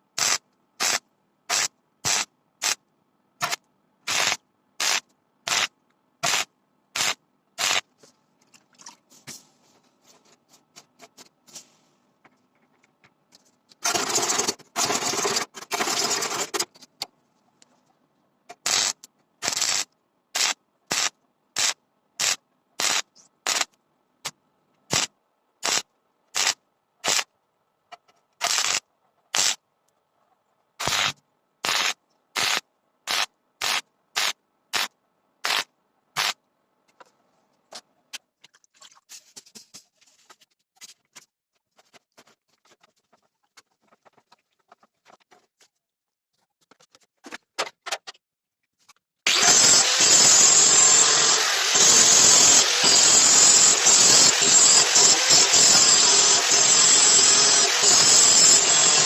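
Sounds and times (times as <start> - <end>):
short bursts of noise: 28.4 - 29.6, 30.8 - 36.4
power tool running: 49.3 - 59.0.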